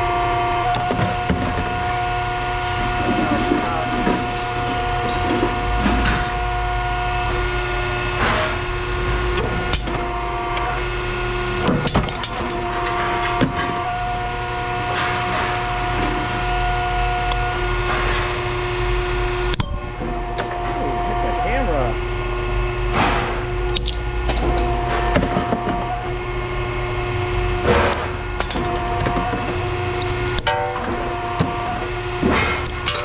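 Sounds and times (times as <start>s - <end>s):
steady mechanical hum: 0.0s - 33.0s.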